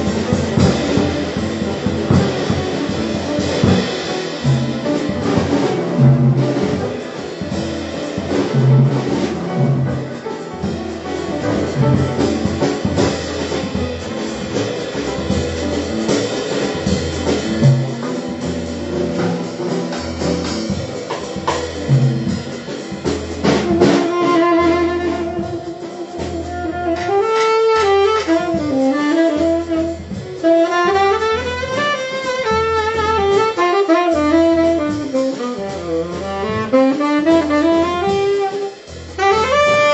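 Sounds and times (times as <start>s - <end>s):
double bass: 0.0s - 39.9s
drum kit: 0.0s - 39.9s
piano: 0.0s - 39.9s
saxophone melody: 23.4s - 39.9s.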